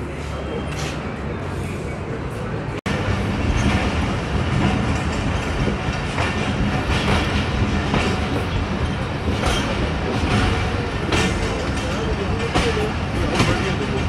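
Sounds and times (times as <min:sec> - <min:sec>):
train wheels rumbling on rail: 0:00.0 - 0:14.0
wheels clacking over rail joints: 0:02.9 - 0:14.0.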